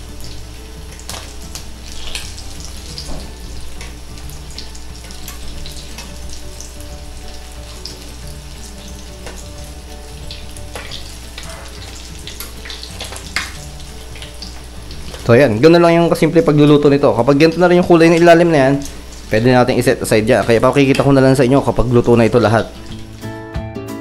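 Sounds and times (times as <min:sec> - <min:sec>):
oil sizzling: 0:00.0 - 0:23.5
oil popping: 0:00.3 - 0:15.5.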